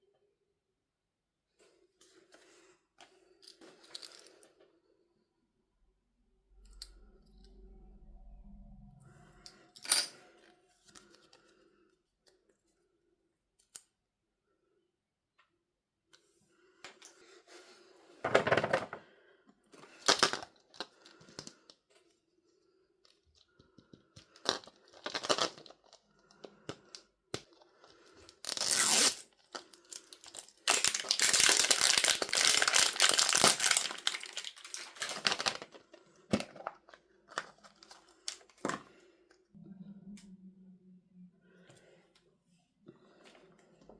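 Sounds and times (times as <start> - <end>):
packaging crinkling: 24.4 - 26.0, 28.4 - 35.8
packaging tearing: 28.4 - 35.7.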